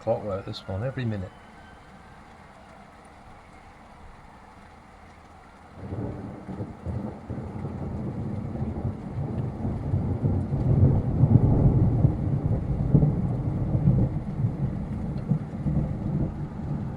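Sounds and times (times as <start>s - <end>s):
rain falling: 0.0s - 16.9s
rolling thunder: 5.8s - 16.9s.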